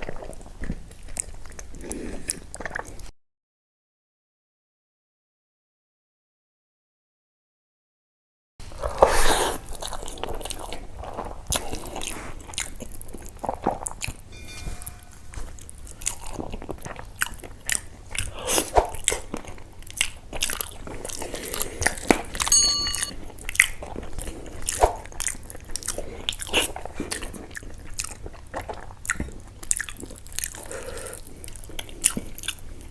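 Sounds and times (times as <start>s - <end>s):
short ringing clink: 22.5s - 23.2s.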